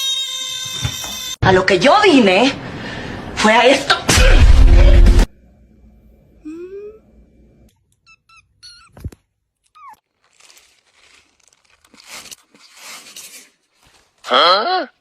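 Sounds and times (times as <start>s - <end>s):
soft crinkling and rustling: 8.9s - 14.3s.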